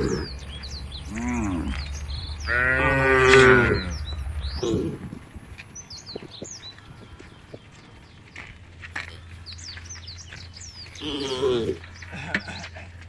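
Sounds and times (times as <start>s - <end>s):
cattle mooing: 0.0s - 5.4s, 10.9s - 12.1s
small birds chirping: 0.0s - 13.0s.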